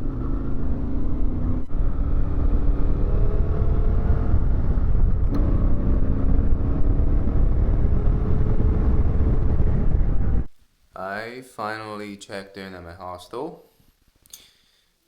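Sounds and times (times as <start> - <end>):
motorcycle engine rumbling: 0.0 - 10.5.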